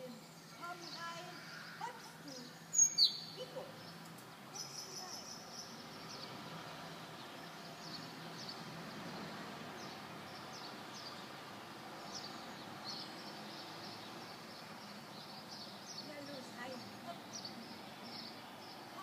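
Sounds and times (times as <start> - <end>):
outdoor background noise: 0.0 - 19.0
small songbird chirping: 0.0 - 19.0.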